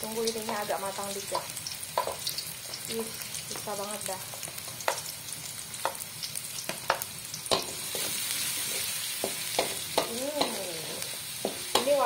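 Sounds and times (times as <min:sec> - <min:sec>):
shallots and garlic sizzling in oil: 0:00.0 - 0:12.0
wooden spatula clacking on wok: 0:11.4 - 0:12.0.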